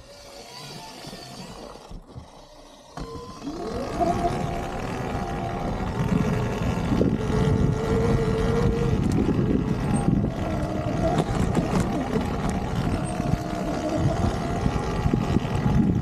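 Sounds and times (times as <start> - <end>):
electric motor whine: 0.0 - 16.0
rough low rumble and knocking: 3.0 - 16.0.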